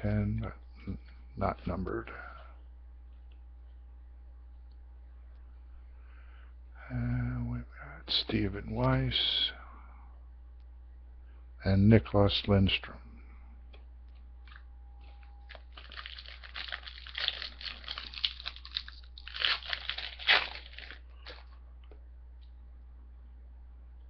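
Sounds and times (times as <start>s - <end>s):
foil wrapper crinkling and tearing: 15.5s - 21.6s.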